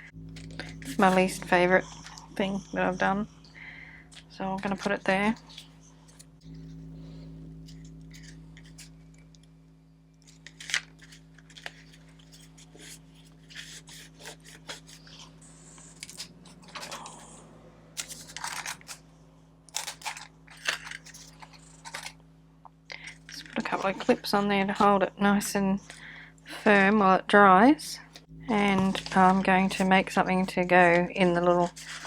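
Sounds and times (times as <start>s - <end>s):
low hum: 0.0s - 32.0s
paper and card handled: 7.6s - 9.0s, 10.2s - 17.3s, 18.0s - 19.0s, 19.7s - 22.2s, 28.5s - 32.0s
paper rustling: 10.3s - 17.3s, 18.0s - 19.0s, 19.7s - 22.2s, 28.5s - 32.0s.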